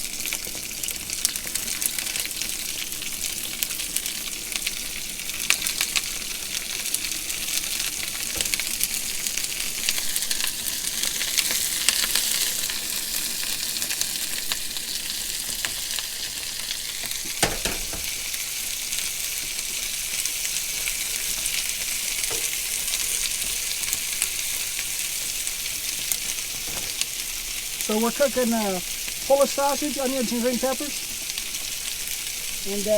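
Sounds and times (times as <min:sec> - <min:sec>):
food sizzling in a skillet: 0:00.0 - 0:32.9
utensil tapping and scraping: 0:17.2 - 0:18.2.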